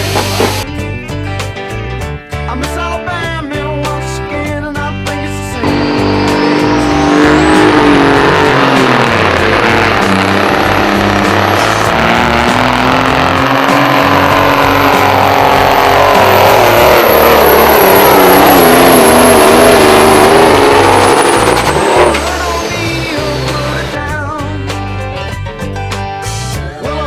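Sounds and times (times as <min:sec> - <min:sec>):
diesel truck engine at full throttle: 0:00.0 - 0:27.0
turbo whistle: 0:05.6 - 0:24.0.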